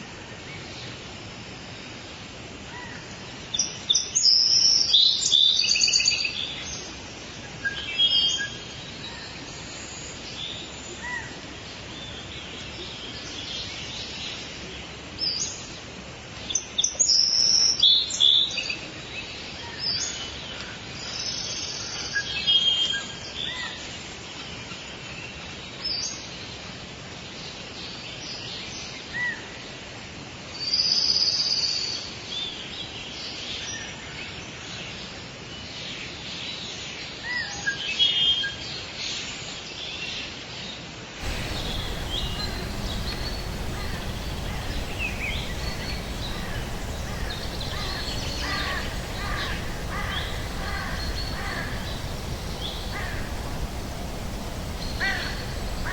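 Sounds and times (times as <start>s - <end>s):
background hiss: 41.2s - 55.9s
birds chirping and trilling: 41.2s - 55.9s.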